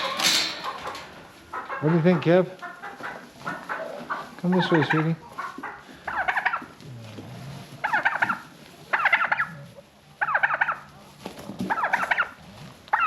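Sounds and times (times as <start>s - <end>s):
turkey calling: 1.5s - 6.7s, 7.8s - 9.6s, 10.2s - 10.9s, 11.7s - 13.0s.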